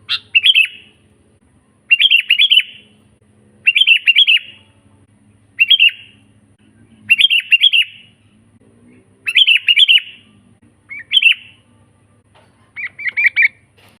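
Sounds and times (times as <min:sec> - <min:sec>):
bird whistling song: 0:00.0 - 0:01.0, 0:01.8 - 0:03.0, 0:03.6 - 0:04.7, 0:05.6 - 0:06.2, 0:07.1 - 0:08.2, 0:09.2 - 0:11.6, 0:12.8 - 0:13.7.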